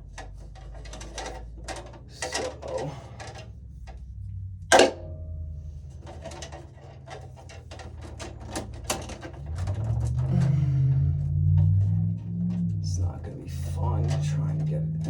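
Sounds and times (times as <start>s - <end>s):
metallic clank with ringing: 4.7s - 5.6s
light clicks and taps: 11.2s - 15.0s.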